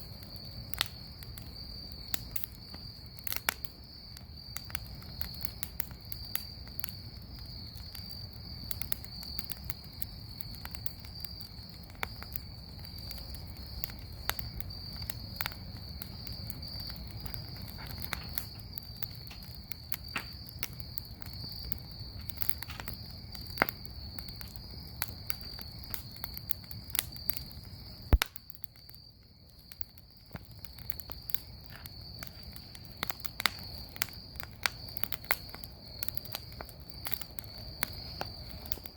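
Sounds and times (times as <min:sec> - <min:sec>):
bonfire crackling and popping: 0:00.0 - 0:38.9.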